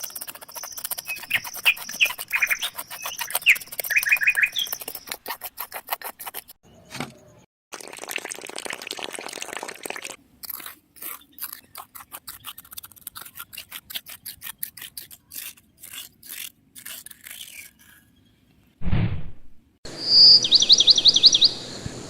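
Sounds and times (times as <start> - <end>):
hand scraping strokes: 0.0 - 6.6.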